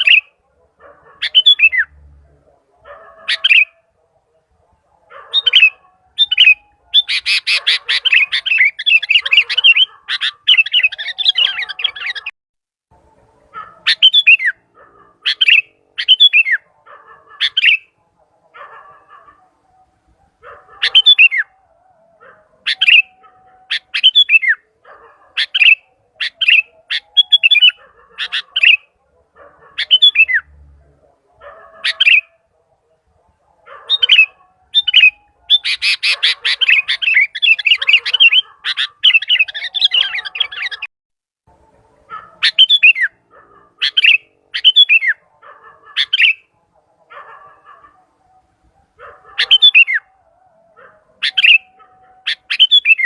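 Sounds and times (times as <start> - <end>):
bulbul calling: 0.0 - 2.0, 3.0 - 4.5, 5.1 - 12.3, 13.6 - 18.0, 20.5 - 21.6, 22.6 - 30.5, 31.6 - 32.4, 33.6 - 40.9, 42.1 - 46.6, 49.1 - 50.1, 51.2 - 53.0.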